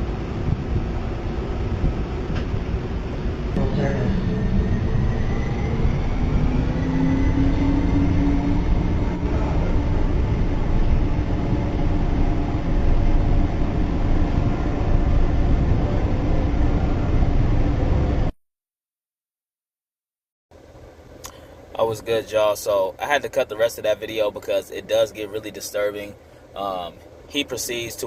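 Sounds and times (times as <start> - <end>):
faint whine: 0.0 - 18.3
subway train rumbling on rails: 0.0 - 18.3.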